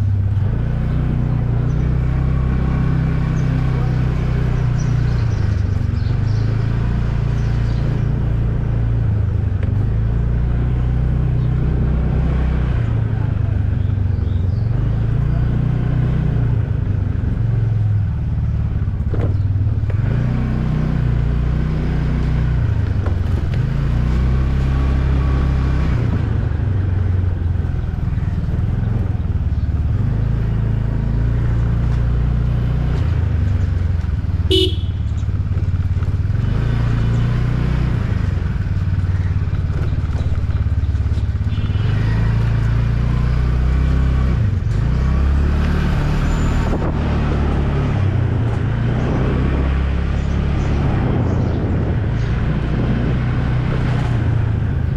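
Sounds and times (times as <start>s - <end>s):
motorcycle engine and road rumble: 0.0s - 54.9s
vehicle horn honk: 34.5s - 35.1s.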